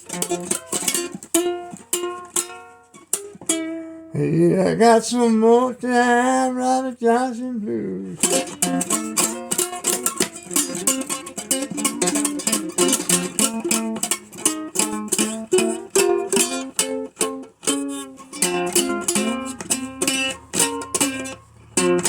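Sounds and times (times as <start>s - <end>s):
ukulele picking blues: 0.0s - 22.0s.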